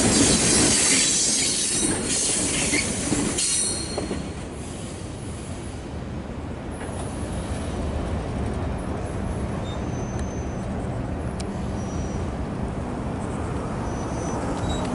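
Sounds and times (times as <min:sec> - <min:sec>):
freight train rumble: 0:00.0 - 0:14.9
faint wheel squeals: 0:09.6 - 0:10.7, 0:11.6 - 0:12.3, 0:13.8 - 0:14.9.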